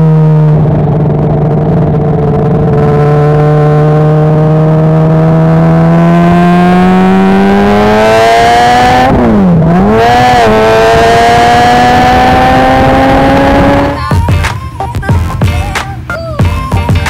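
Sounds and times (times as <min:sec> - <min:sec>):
wind rush: 0:00.0 - 0:04.8
motorcycle engine accelerating: 0:00.0 - 0:17.0.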